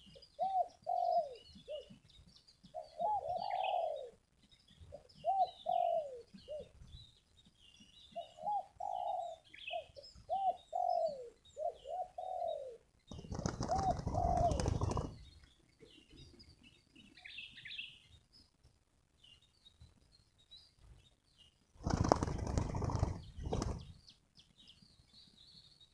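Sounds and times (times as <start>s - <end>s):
small birds chirping: 0.0s - 25.9s
dove cooing: 0.1s - 2.0s, 2.7s - 4.2s, 4.9s - 6.8s, 8.2s - 15.2s.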